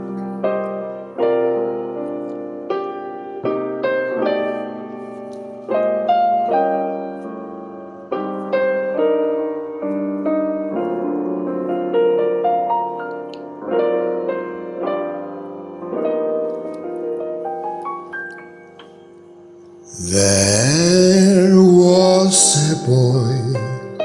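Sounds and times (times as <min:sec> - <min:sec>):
piano chords: 0:19.9 - 0:24.0.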